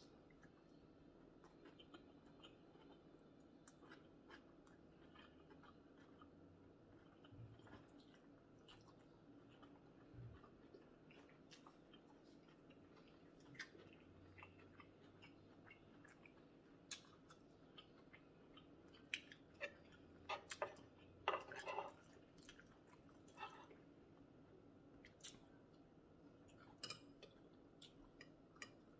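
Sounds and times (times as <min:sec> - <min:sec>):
person chewing: 0:00.2 - 0:23.9, 0:25.0 - 0:25.8
small mouth clicks and smacks: 0:25.0 - 0:25.5.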